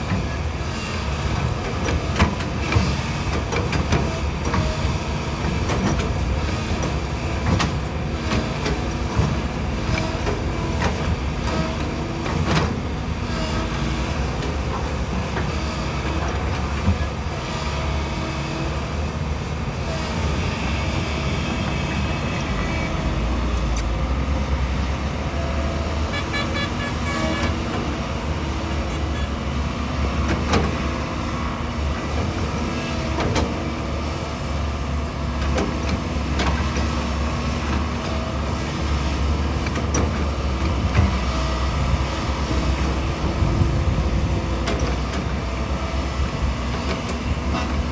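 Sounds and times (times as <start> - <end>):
excavator diesel engine: 0.0 - 47.9.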